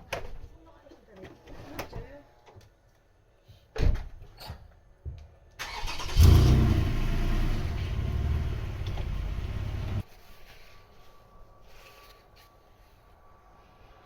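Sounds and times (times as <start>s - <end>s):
motorcycle engine starting and idling: 5.6s - 10.0s.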